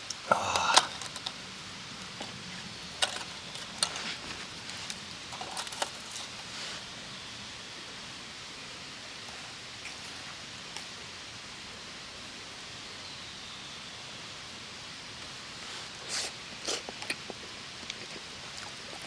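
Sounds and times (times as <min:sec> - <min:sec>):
steady outdoor hiss: 0:00.0 - 0:19.0
rustling: 0:03.0 - 0:06.9.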